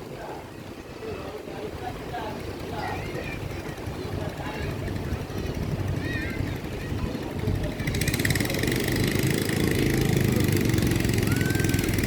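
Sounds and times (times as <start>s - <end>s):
engine running with rapid pulse: 2.5s - 12.0s.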